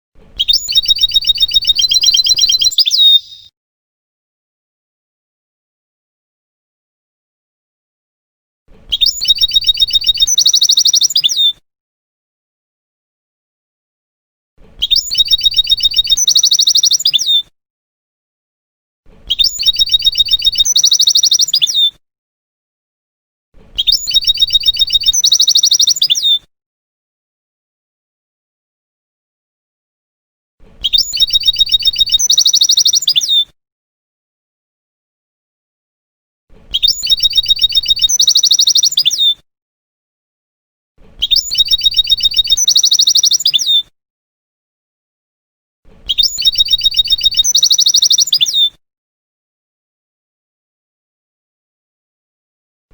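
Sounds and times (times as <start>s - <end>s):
goldfinch song: 0.3s - 3.5s, 8.9s - 11.6s, 14.8s - 17.5s, 19.2s - 22.0s, 23.7s - 26.4s, 30.8s - 33.5s, 36.6s - 39.4s, 41.1s - 43.9s, 46.0s - 48.8s.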